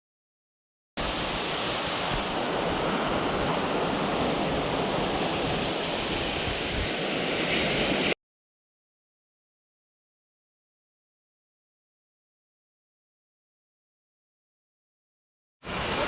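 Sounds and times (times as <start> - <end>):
waterfall rushing: 1.0 - 8.2, 15.7 - 16.0.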